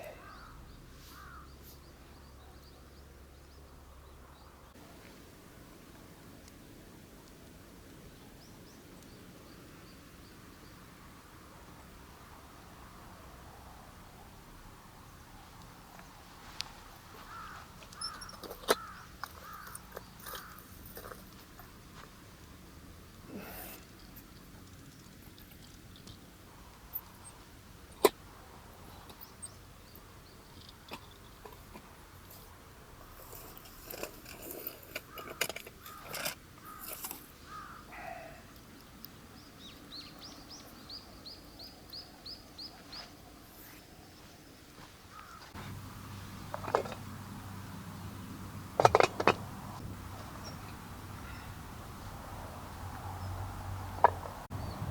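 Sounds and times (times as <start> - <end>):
bird calling: 0.0 - 1.9, 17.1 - 21.2, 34.5 - 38.5
knocks and clatters: 48.8 - 49.5.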